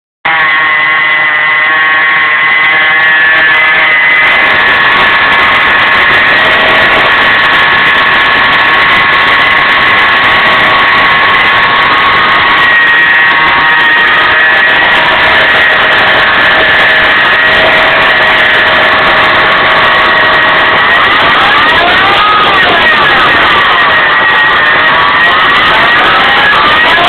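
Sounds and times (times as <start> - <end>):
high-pitched pulley whine: 0.2 - 27.0.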